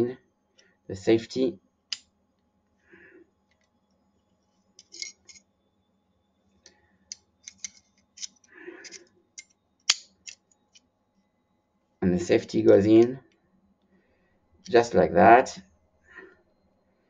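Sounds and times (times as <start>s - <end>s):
small metal parts clicking: 4.8s - 5.4s, 7.1s - 10.8s.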